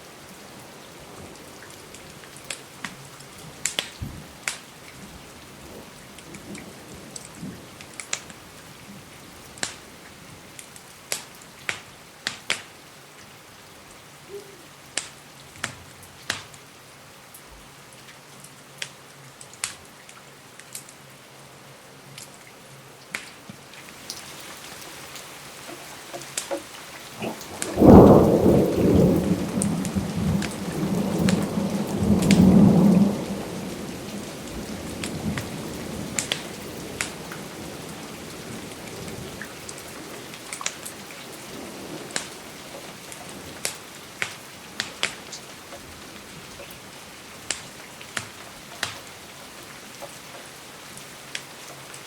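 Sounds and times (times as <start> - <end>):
steady rain: 0.0 - 52.0
fireplace crackles: 1.7 - 4.9, 23.1 - 31.6, 35.0 - 52.0
thunderclap rumbling: 27.0 - 39.4.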